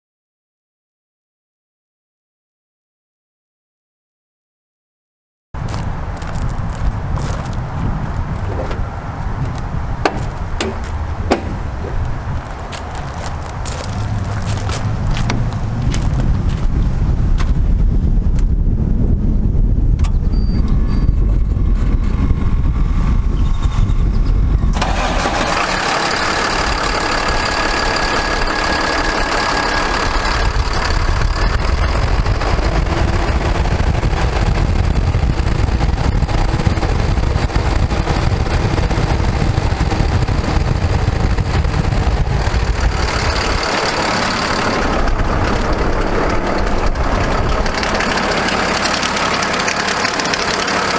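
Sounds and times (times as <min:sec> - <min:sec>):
diesel engine idling: 0:05.6 - 0:17.2, 0:24.6 - 0:50.9
wind rumble on microphone: 0:05.6 - 0:50.9.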